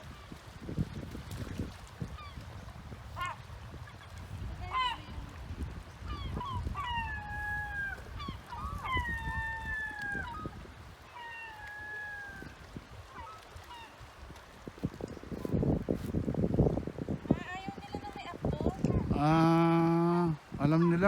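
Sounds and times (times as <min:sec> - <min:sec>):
seagulls calling: 0:03.1 - 0:14.0.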